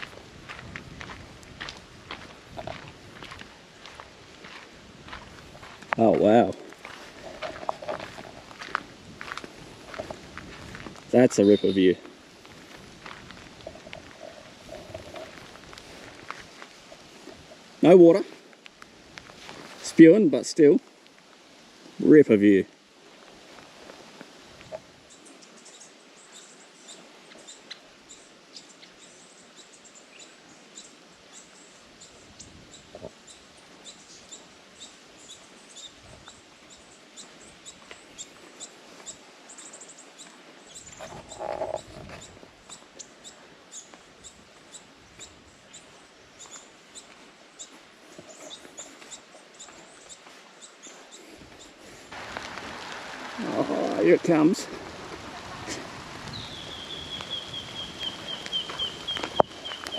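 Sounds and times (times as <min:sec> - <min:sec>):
faint outdoor hiss: 0:00.0 - 0:59.9
small birds chirping: 0:02.1 - 0:12.1, 0:25.0 - 0:52.2, 0:52.8 - 0:59.9
lower bird call: 0:55.2 - 0:59.9.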